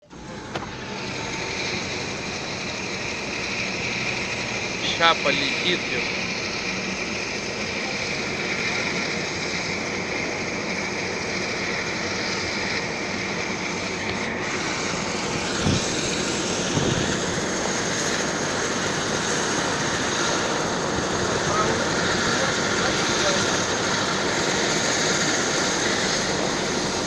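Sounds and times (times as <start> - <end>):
helicopter rotor and turbine: 0.0 - 27.0.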